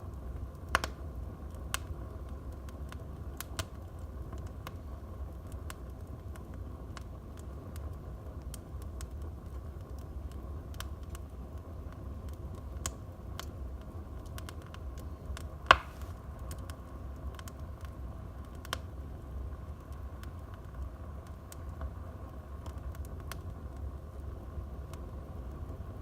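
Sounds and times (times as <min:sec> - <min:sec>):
wood fire crackling: 0:00.0 - 0:26.0
loud sharp pop from fire: 0:00.7 - 0:01.0, 0:15.4 - 0:16.2.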